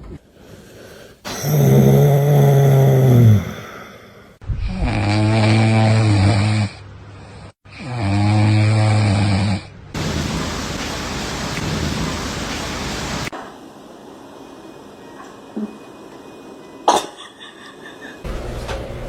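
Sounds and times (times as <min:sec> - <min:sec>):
steady hiss: 0:10.0 - 0:16.7.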